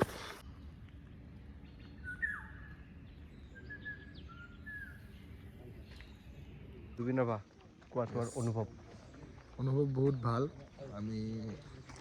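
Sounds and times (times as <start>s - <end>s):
faint whistled bird calls: 1.5s - 7.0s.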